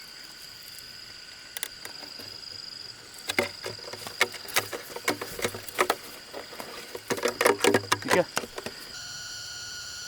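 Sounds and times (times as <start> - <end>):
high-pitched insect drone: 8.2 - 10.0.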